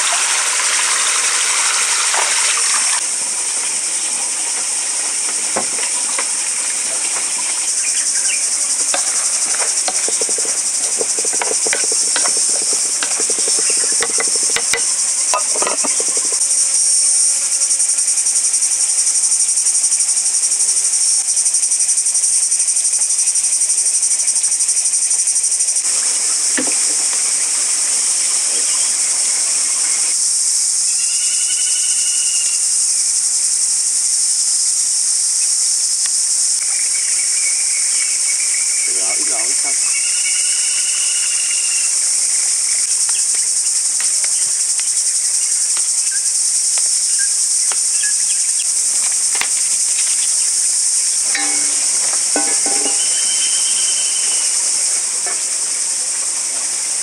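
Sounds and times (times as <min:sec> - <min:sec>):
forest insects chorus: 0:00.0 - 0:57.0
knocks and clatter: 0:08.8 - 0:16.6, 0:51.2 - 0:53.2.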